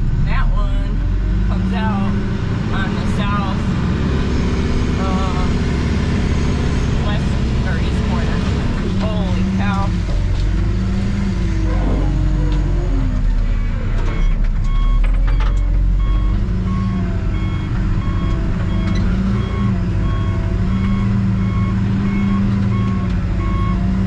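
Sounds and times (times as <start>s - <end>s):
diesel engine under load: 0.0s - 24.0s
reversing alarm beeping: 11.6s - 23.9s.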